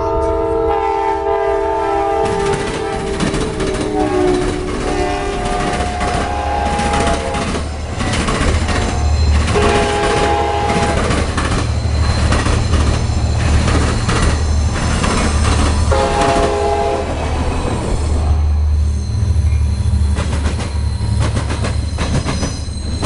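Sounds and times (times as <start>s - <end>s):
train horn blasts: 0.0s - 7.7s, 8.7s - 11.3s, 15.9s - 17.3s
diesel locomotive approaching: 0.0s - 23.0s
low train rumble: 0.0s - 23.0s
train wheels clacking on track: 2.2s - 18.3s, 19.2s - 23.0s.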